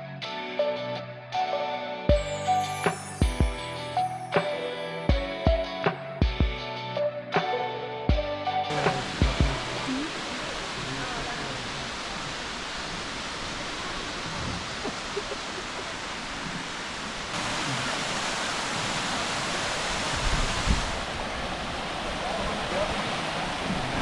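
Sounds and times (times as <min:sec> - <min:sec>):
waterfall rushing: 0:08.7 - 0:24.0.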